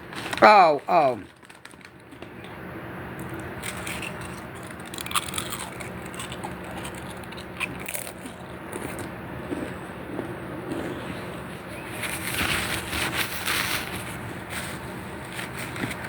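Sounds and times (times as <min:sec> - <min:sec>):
dog gnawing on a bone: 0:01.4 - 0:11.0.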